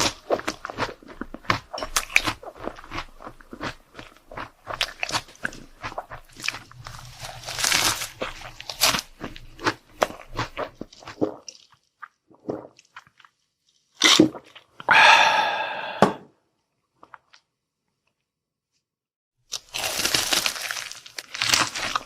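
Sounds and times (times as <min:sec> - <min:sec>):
chewing crunches and mouth clicks: 0:00.0 - 0:14.7, 0:19.6 - 0:22.0.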